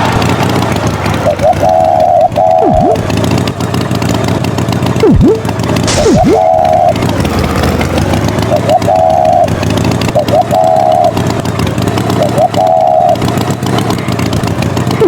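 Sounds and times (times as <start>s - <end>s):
cartoon tractor engine running: 0.0s - 15.0s
swooping sound effects: 1.2s - 3.1s, 5.0s - 7.3s
two-tone horn beep: 5.0s - 7.0s.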